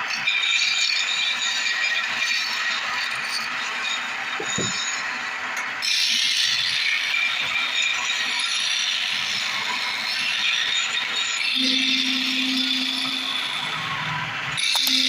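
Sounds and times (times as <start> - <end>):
low steady hum: 11.6 - 14.2, 14.8 - 15.0.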